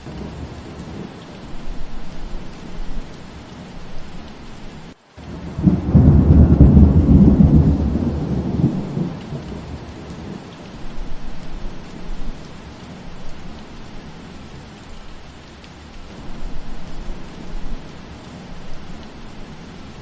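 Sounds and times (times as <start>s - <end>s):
steady rain: 0.0s - 20.0s
thunder rumble: 5.2s - 14.3s.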